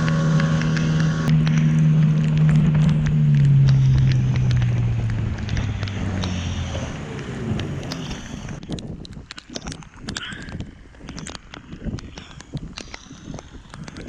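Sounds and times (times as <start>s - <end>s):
boat motor throttling down: 0.0s - 14.0s
wind noise on microphone: 0.0s - 14.0s.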